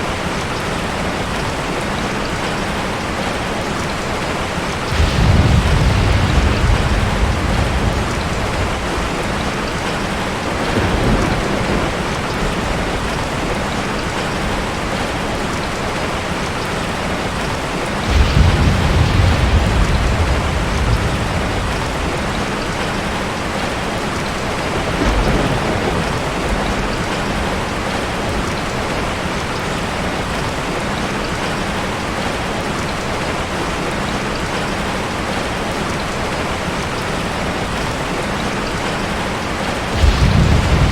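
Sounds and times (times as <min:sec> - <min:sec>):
heavy rain hissing: 0:00.4 - 0:34.5, 0:35.1 - 0:40.9
thunder rolling: 0:04.8 - 0:15.0, 0:17.4 - 0:29.4, 0:38.8 - 0:40.9.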